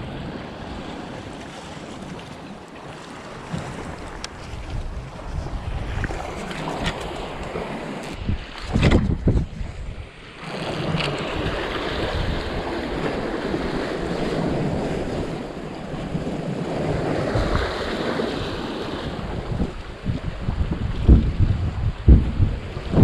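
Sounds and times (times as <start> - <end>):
surf on rocky shore: 0.0 - 23.0
wind buffeting microphone: 3.3 - 23.0.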